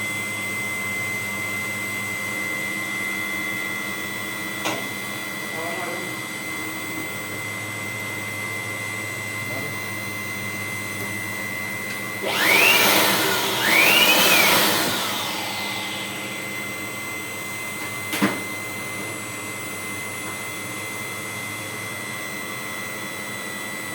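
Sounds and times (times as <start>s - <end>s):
workshop machinery high whine: 11.9s - 17.9s.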